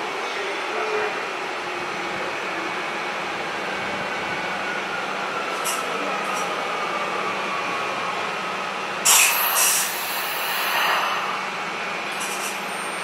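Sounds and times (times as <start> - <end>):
electric train humming and whining: 0.0 - 13.0
air brake hiss: 9.0 - 11.4.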